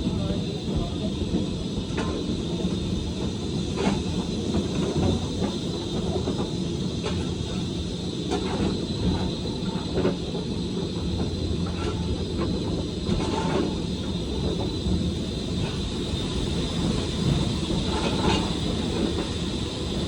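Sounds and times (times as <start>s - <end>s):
train rumbling on track: 0.0s - 20.0s.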